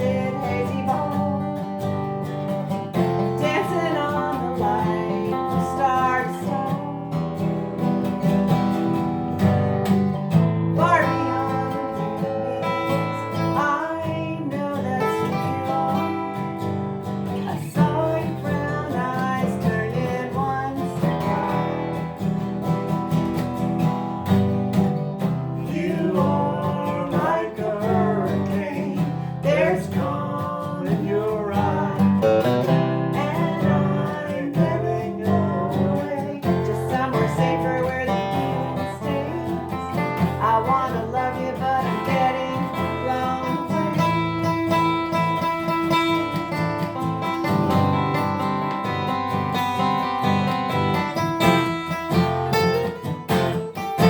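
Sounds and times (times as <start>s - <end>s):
person singing: 0.0s - 7.9s, 10.6s - 22.2s, 25.2s - 53.1s
acoustic guitar strumming: 0.0s - 54.0s.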